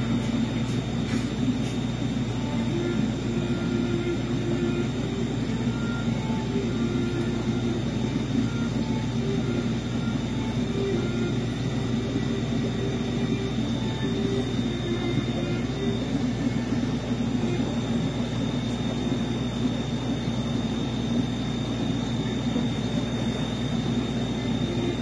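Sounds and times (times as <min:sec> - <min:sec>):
aquarium equipment humming: 0:00.0 - 0:25.0.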